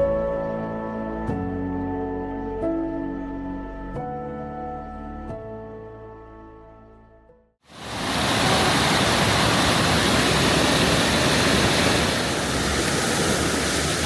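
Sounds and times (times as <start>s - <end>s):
background music: 0.0s - 7.5s
small waterfall rushing: 7.7s - 14.0s.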